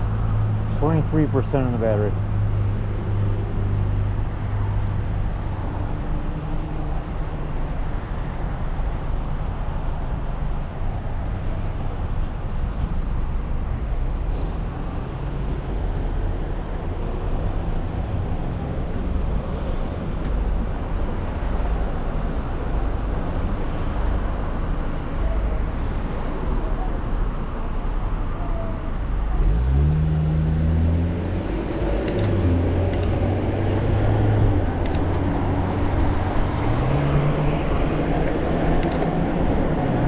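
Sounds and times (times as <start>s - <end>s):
car cabin road noise: 26.7s - 40.0s.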